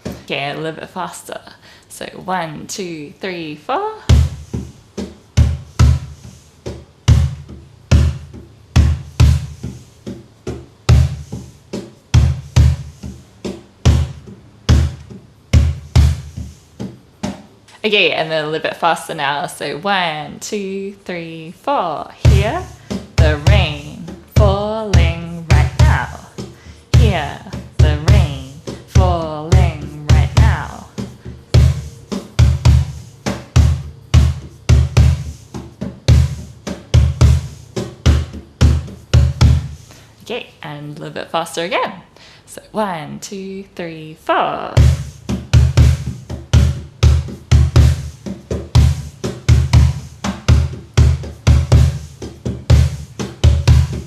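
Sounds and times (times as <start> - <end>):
cajon drumming: 0.0 - 0.6, 4.0 - 17.8, 22.2 - 40.0, 44.7 - 54.0.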